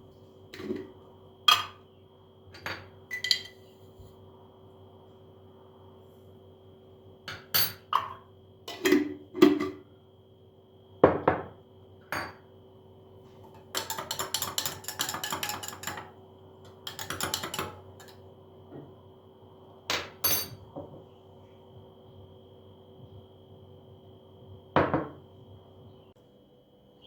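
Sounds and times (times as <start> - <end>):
dishes and utensils clattering: 13.4 - 18.2, 19.9 - 20.9.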